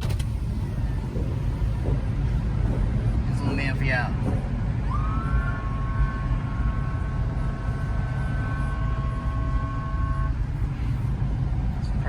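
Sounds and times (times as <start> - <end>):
car engine and road noise: 0.0 - 12.0
high siren-like tone: 4.9 - 10.6.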